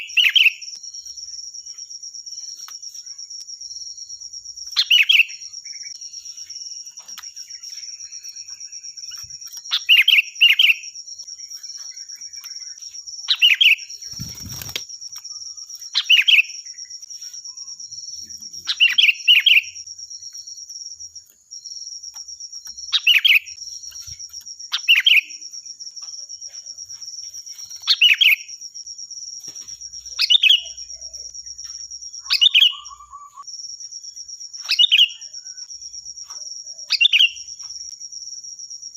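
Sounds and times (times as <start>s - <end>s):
bird calling shrilly: 0.0s - 0.8s, 4.8s - 6.6s, 7.3s - 11.0s, 11.8s - 14.8s, 15.8s - 16.8s, 18.6s - 19.8s, 22.9s - 24.0s, 24.7s - 25.4s, 32.2s - 33.5s, 34.7s - 35.6s.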